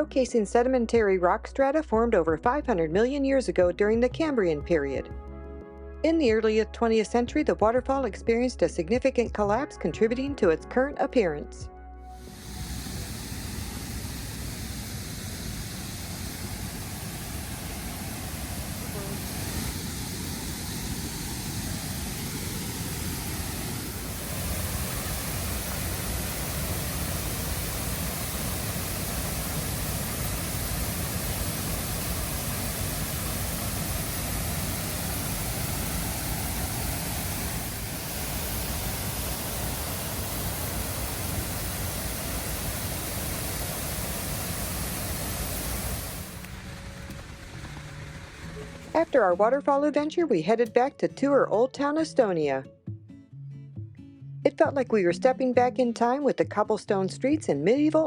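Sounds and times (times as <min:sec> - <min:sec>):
waterfall rushing: 0:12.2 - 0:48.9.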